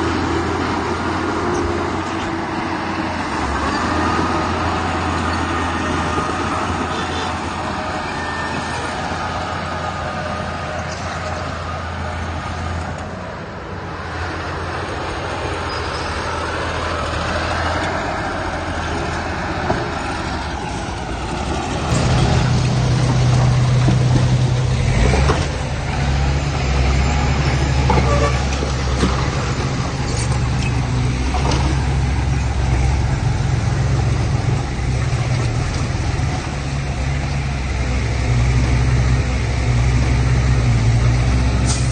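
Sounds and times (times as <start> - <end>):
deeper engine: 0.0 - 41.9
heavy diesel engines running: 0.0 - 41.9
machinery clanks: 19.6 - 36.5.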